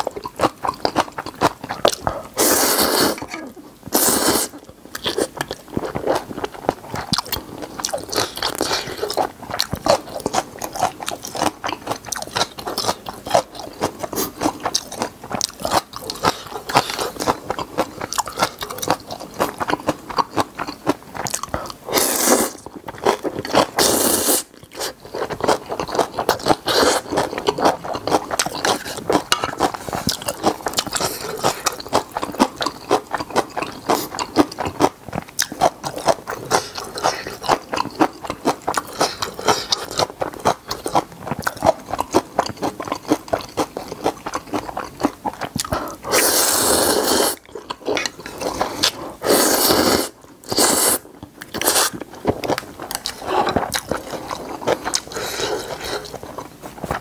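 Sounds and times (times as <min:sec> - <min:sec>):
chewing and crunching: 0:00.0 - 0:57.0.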